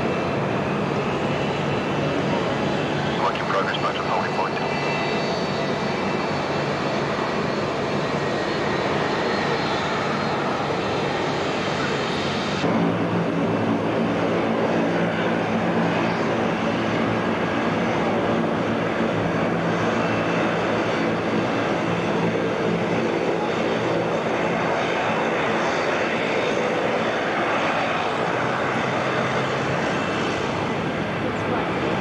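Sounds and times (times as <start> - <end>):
airliner engines running: 0.0 - 32.0.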